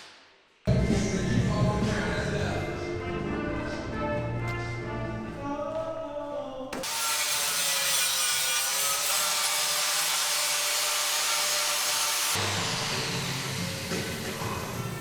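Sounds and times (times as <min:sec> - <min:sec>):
background music: 0:00.7 - 0:06.8.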